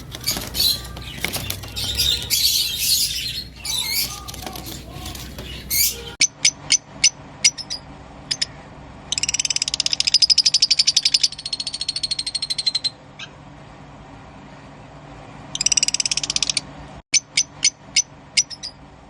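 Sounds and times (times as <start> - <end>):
bird rapid trill: 0.0 - 8.5, 9.1 - 13.4
bird chirps: 0.0 - 13.4, 17.4 - 18.8.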